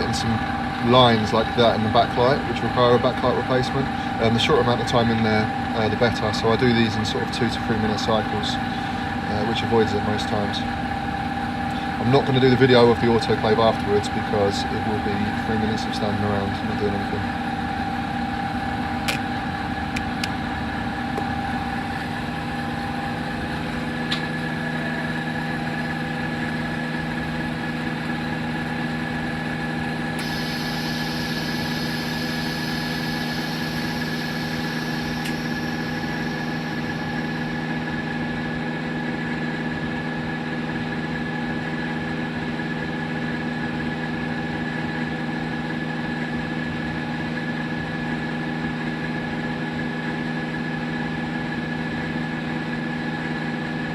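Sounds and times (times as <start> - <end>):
higher machine tone: 0.0 - 39.6
workshop machinery humming: 0.0 - 53.9.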